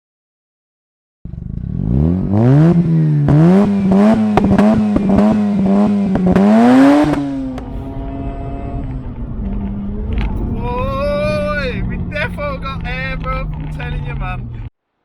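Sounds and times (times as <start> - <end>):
sharp exhaust pops: 1.3 - 10.5
rotary engine revving: 1.3 - 14.7.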